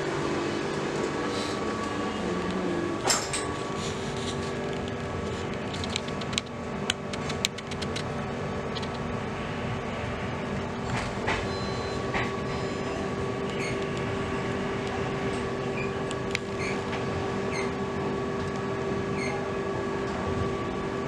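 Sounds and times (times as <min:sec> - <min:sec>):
sharp clicks: 0:05.6 - 0:08.1.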